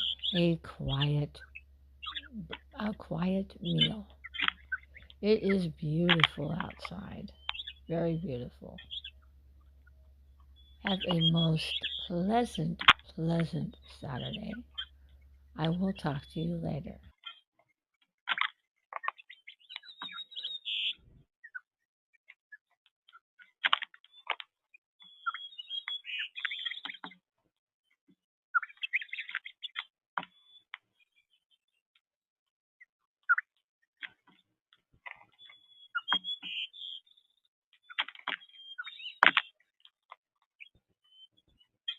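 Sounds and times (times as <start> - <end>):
small birds twittering: 0.0 - 17.4, 18.3 - 21.6, 25.0 - 27.1, 28.6 - 30.7, 35.1 - 39.6.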